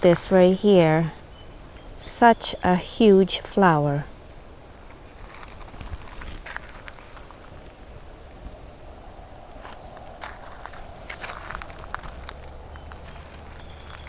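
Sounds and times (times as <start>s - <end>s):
faint rustles and ticks: 4.8s - 8.6s, 9.5s - 14.0s.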